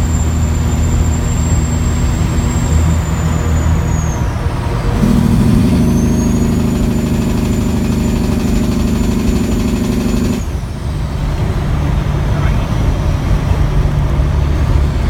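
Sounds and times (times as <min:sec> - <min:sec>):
turbo whistle: 0:00.0 - 0:10.6
diesel truck engine pulling hard: 0:00.0 - 0:15.0.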